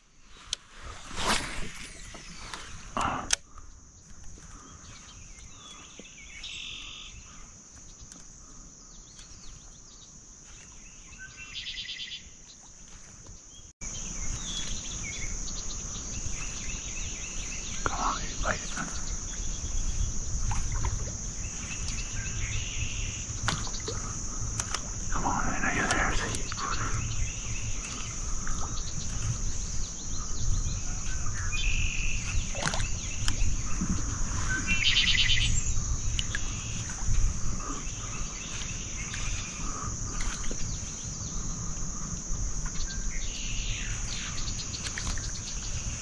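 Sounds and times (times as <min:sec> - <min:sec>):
insect drone: 0:00.0 - 0:46.0
bird chirps: 0:01.8 - 0:08.2, 0:34.4 - 0:35.8.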